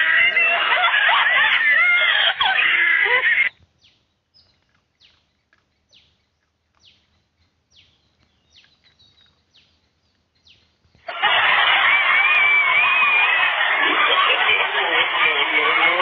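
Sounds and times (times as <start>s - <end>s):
faint bird chirps: 2.2s - 11.1s.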